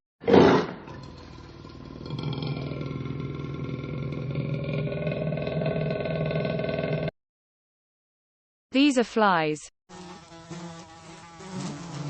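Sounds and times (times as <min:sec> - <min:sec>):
panther growling: 0:00.3 - 0:07.1.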